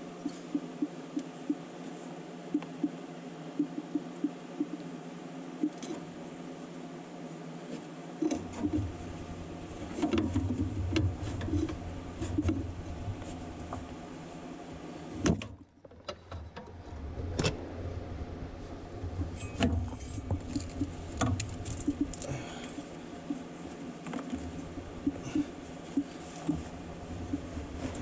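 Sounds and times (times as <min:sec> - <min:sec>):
rustling and handling noise: 0:07.6 - 0:15.0, 0:18.6 - 0:28.0.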